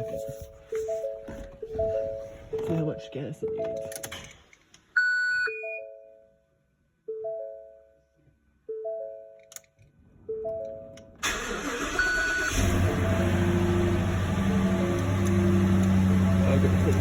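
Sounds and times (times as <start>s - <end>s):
truck warning chime: 10.3s - 17.0s
truck engine starting and idling: 11.2s - 17.0s
short beep: 12.0s - 12.6s.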